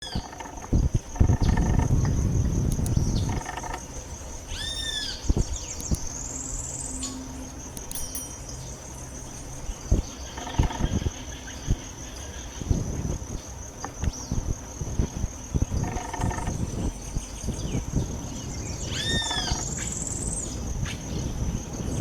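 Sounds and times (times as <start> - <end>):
high-pitched insect drone: 0.0 - 22.0
bird calls: 2.8 - 7.2, 17.2 - 20.6.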